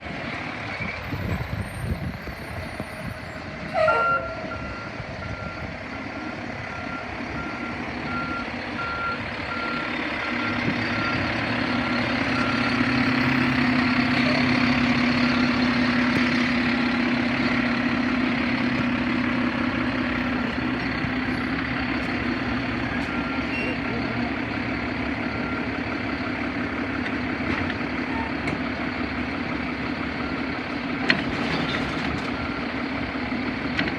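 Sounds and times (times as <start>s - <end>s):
diesel truck engine: 0.0s - 33.9s
loud squeal: 0.7s - 4.6s
reversing beeper: 1.7s - 16.5s, 20.1s - 24.3s.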